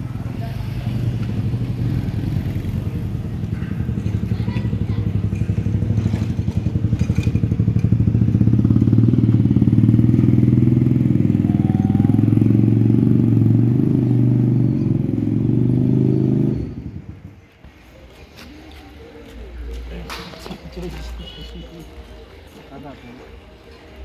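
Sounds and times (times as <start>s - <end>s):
motorcycle engine running: 0.0s - 17.4s.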